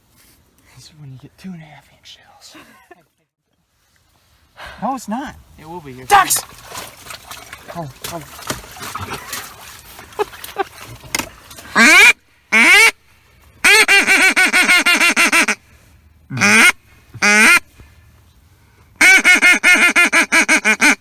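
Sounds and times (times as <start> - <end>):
duck call quacks: 11.7 - 13.0, 13.6 - 15.6, 16.3 - 17.7, 19.0 - 21.0.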